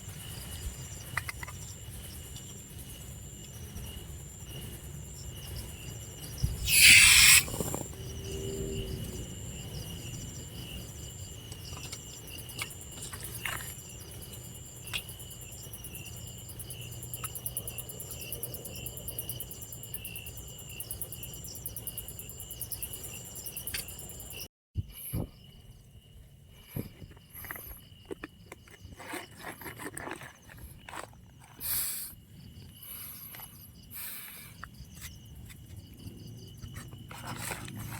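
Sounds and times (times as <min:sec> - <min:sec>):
insect pulsed chirp: 0:00.0 - 0:24.5
insects trilling: 0:00.0 - 0:37.9.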